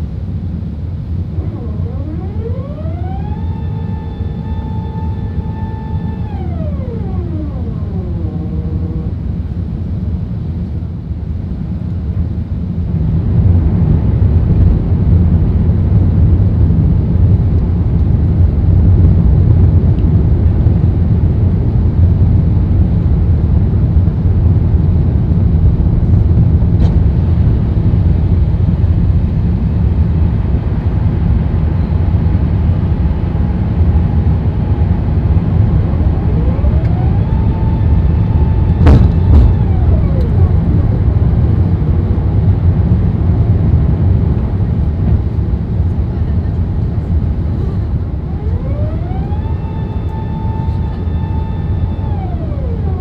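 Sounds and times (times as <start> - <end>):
aircraft cabin engine rumble: 0.0 - 53.0.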